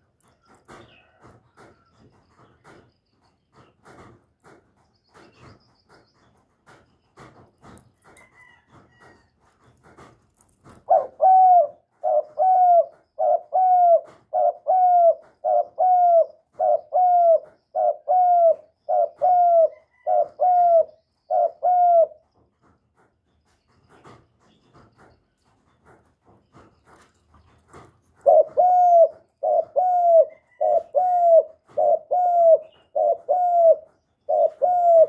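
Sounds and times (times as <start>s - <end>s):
dove cooing: 10.8s - 22.3s, 28.2s - 35.0s.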